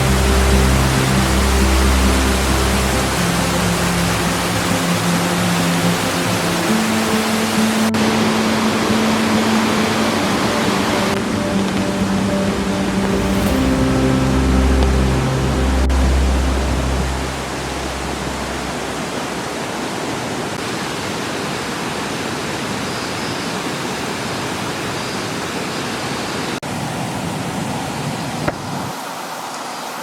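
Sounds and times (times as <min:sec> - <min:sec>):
low hum: 0:00.0 - 0:20.6
flowing water: 0:00.0 - 0:26.6.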